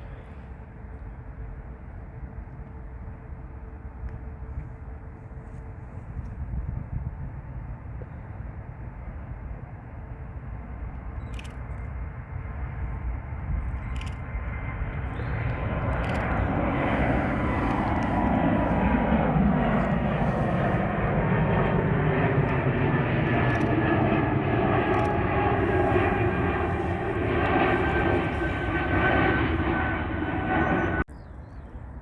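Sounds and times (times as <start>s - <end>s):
airliner engines passing: 0.0s - 32.0s.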